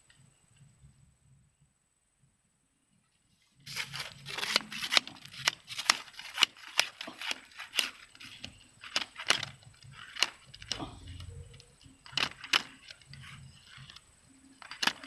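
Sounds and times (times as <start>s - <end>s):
rustling: 3.1s - 15.0s.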